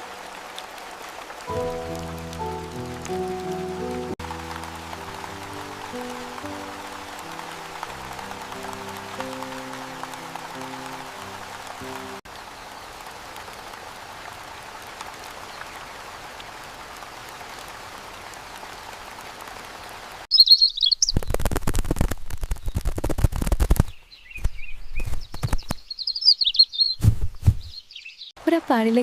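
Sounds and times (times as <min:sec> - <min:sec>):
steady rain hiss: 0:00.0 - 0:20.3
small birds chirping: 0:20.3 - 0:21.5, 0:22.5 - 0:29.0
loud clicks and crackles: 0:21.1 - 0:25.8.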